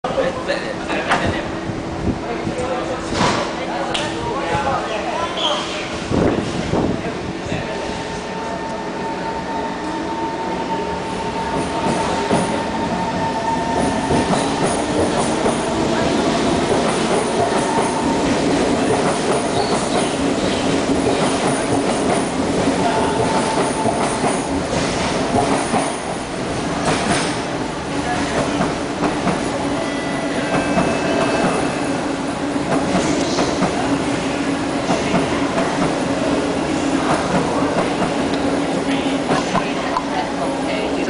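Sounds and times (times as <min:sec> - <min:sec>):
metro train running on track: 0:00.0 - 0:41.0.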